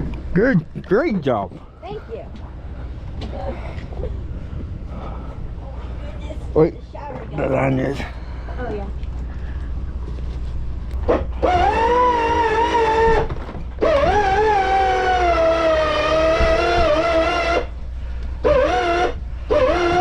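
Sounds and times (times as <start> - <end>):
steady low hum: 0.0 - 20.0
horn blasts: 18.4 - 20.0.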